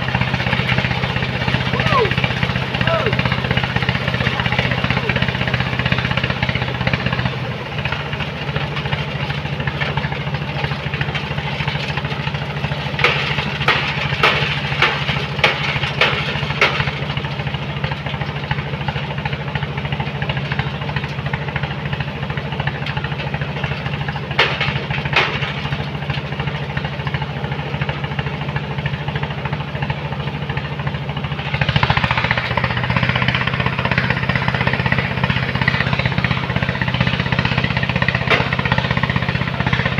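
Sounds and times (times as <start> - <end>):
loading machine engine running: 0.0 - 39.9
sharp metal clanks: 35.6 - 38.9.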